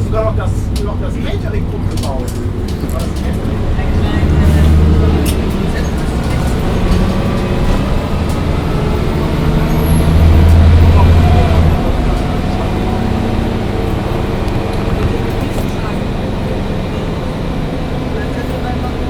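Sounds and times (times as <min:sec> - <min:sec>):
bus diesel engine drone: 0:00.0 - 0:19.0.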